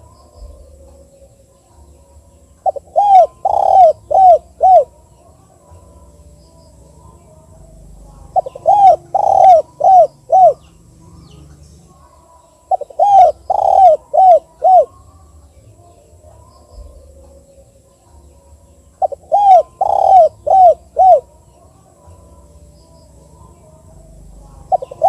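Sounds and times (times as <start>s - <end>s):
dove cooing: 2.5s - 6.1s, 6.8s - 15.2s, 19.0s - 21.6s, 23.5s - 25.0s.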